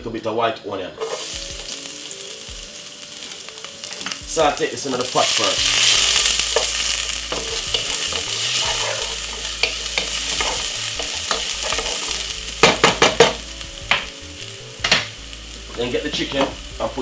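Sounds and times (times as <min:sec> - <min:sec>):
garlic and onion sizzling in oil: 0:01.0 - 0:17.0
utensil scraping and knocking pan: 0:05.6 - 0:14.2, 0:14.8 - 0:16.6.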